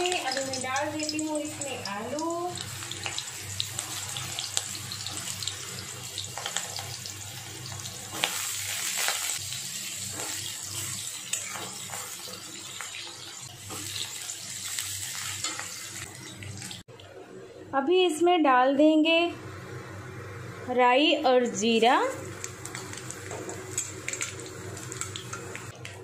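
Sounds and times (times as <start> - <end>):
potatoes sizzling in oil: 0.0 - 16.8, 21.5 - 25.8
metal spatula scraping: 10.0 - 12.3, 13.7 - 16.3.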